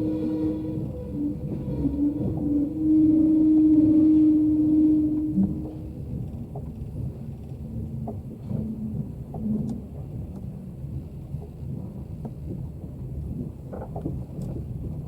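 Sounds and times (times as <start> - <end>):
passenger train rumbling: 0.0 - 15.0.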